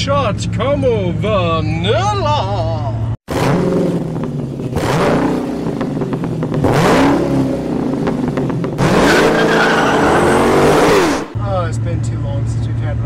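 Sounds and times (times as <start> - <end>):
car engine revving: 3.3 - 11.4.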